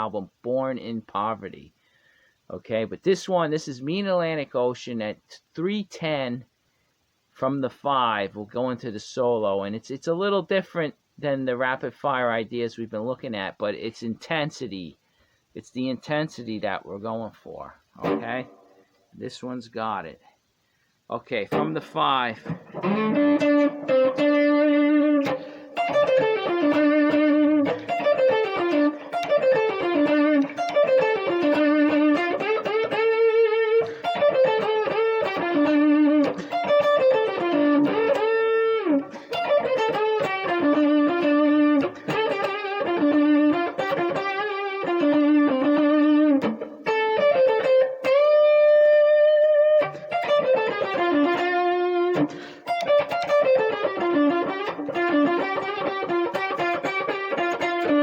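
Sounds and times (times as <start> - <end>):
overdriven electric guitar solo: 18.0 - 18.8, 21.5 - 58.0.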